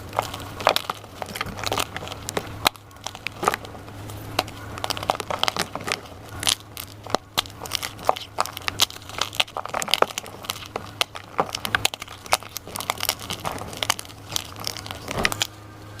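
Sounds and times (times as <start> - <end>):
chalk crunching: 0.0 - 16.0.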